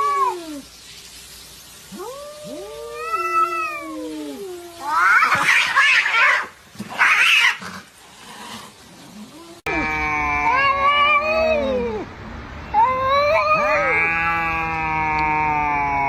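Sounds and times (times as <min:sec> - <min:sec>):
cats screeching: 0:00.0 - 0:00.7, 0:01.9 - 0:07.8, 0:09.1 - 0:12.1, 0:12.7 - 0:16.0
cats yowling: 0:00.0 - 0:00.7, 0:01.9 - 0:07.8, 0:09.0 - 0:12.1, 0:12.7 - 0:16.0.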